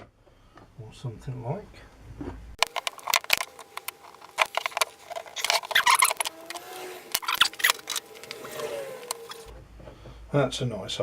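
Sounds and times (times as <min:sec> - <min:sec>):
metal tools clicking and scraping: 0:02.6 - 0:09.5.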